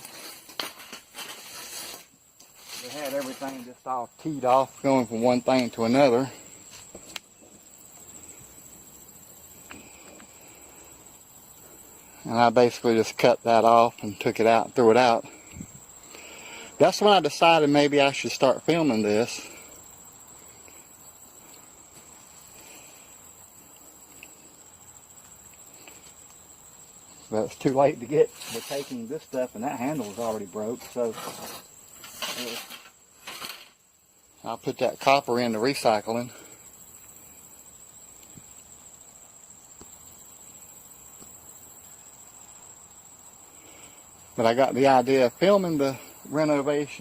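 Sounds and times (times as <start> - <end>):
crickets chirring: 0.0 - 47.0
insect trill: 0.0 - 47.0
faint ticks: 37.8 - 39.0.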